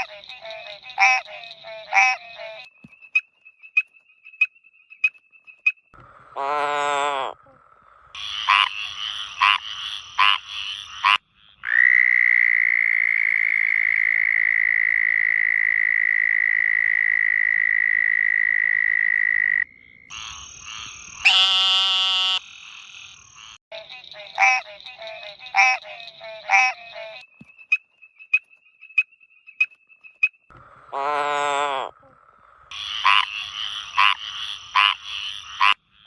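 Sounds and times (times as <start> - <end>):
frog trilling: 0.0 - 2.6, 6.4 - 27.2, 30.9 - 36.0
frog croaking: 0.0 - 2.7, 6.0 - 27.2, 30.5 - 36.0.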